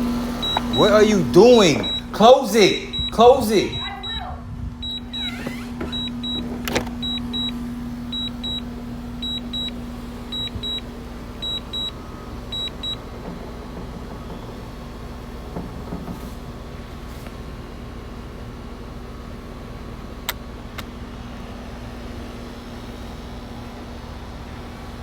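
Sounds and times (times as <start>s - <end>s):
steady low hum: 0.0s - 12.5s
high-pitched double beeps: 0.4s - 4.2s.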